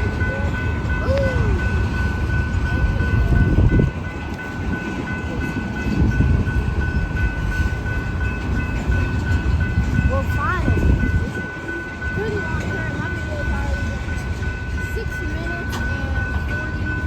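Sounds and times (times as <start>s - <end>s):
freight train cars rumbling: 0.0s - 17.0s.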